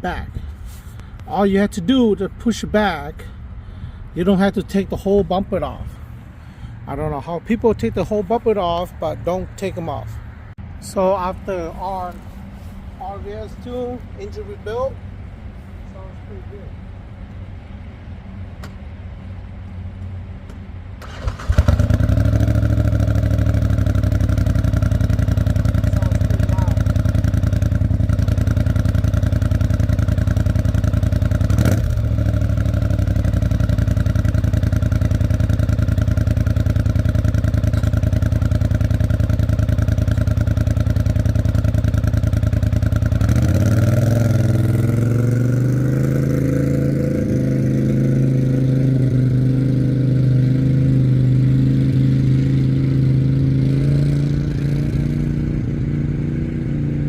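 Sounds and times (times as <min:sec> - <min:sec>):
atv engine running: 0:21.0 - 0:57.0.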